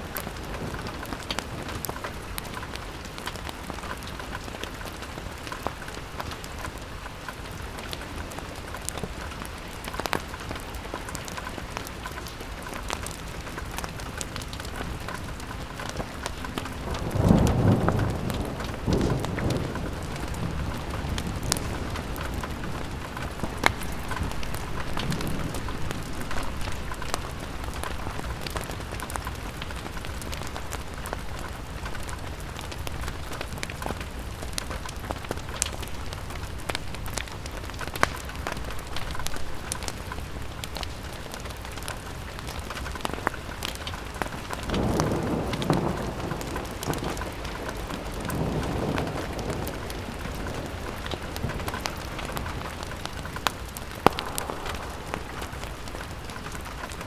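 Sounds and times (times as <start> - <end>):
rain on a window: 0.0 - 57.0
fireplace crackles: 0.1 - 57.0
sharp drip ticks: 53.4 - 56.6
low rumble: 53.9 - 57.0.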